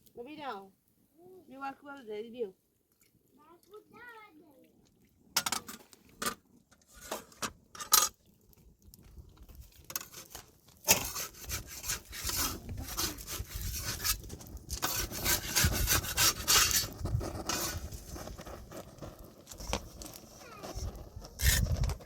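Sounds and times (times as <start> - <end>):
rough scraping against wood: 6.8 - 8.2, 9.8 - 22.0.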